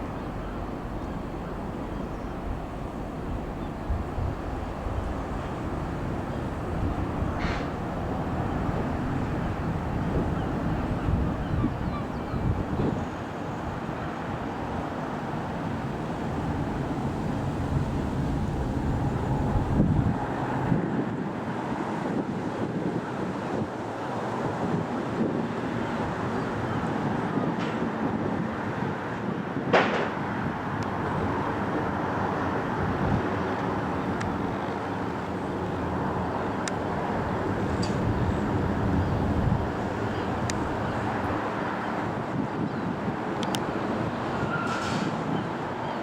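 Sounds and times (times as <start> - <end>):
jet engines rumbling: 0.0 - 20.8, 30.4 - 42.2
wind buffeting microphone: 0.0 - 45.8.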